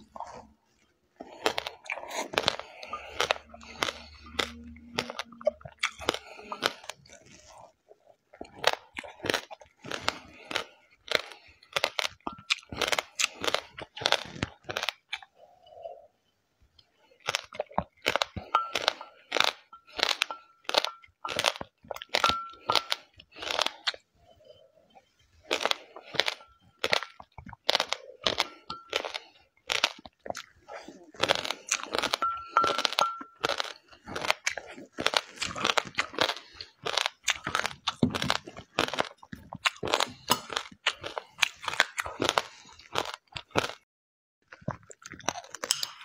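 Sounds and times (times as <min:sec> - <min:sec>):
crunching and chewing seeds: 0:00.0 - 0:16.1, 0:16.8 - 0:46.0.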